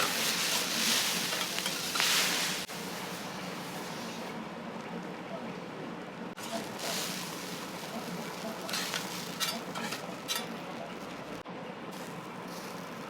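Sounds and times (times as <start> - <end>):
metal spatulas scraping: 0.0 - 2.7, 6.4 - 11.2
food sizzling on a griddle: 0.0 - 4.3, 6.4 - 11.4, 12.0 - 13.0.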